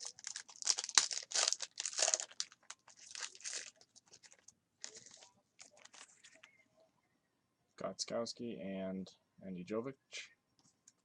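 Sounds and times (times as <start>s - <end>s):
foil wrappers tearing and crinkling: 0.0s - 5.2s.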